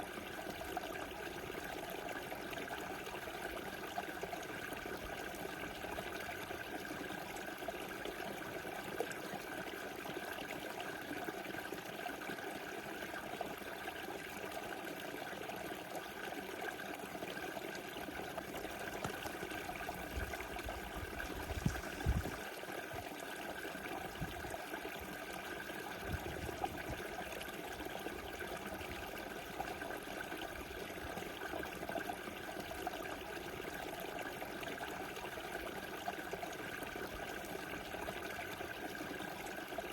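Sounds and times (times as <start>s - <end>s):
river water rushing and trickling: 17.1s - 33.7s.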